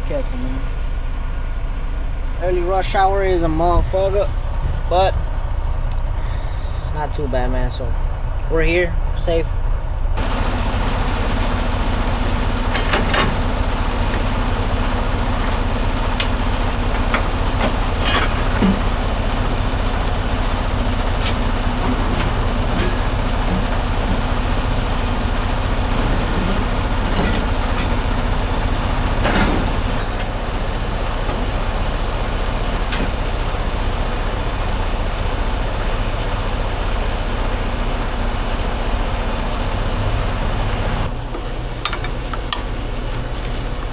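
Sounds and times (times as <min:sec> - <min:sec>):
diesel truck engine rumbling: 0:00.0 - 0:43.9.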